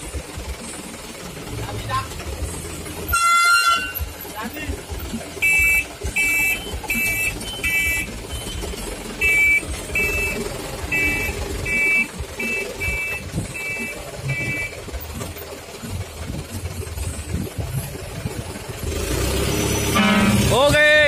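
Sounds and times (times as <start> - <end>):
truck engine rumbling: 0.0 - 21.0
truck two-tone beeper: 3.0 - 4.3, 5.3 - 15.3, 19.8 - 20.8.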